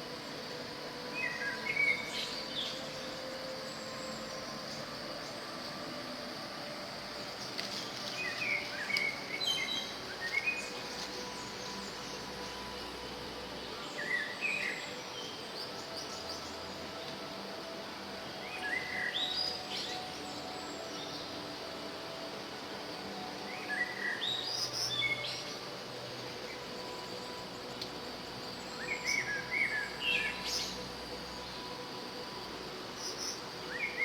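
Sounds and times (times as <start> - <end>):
high insect drone: 0.0 - 34.0.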